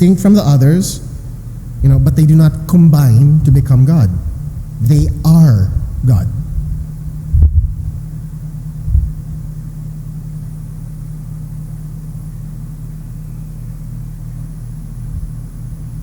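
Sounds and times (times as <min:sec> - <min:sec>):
low hum and rumble: 0:00.0 - 0:16.0
short low thump: 0:05.8 - 0:08.1, 0:08.8 - 0:09.5.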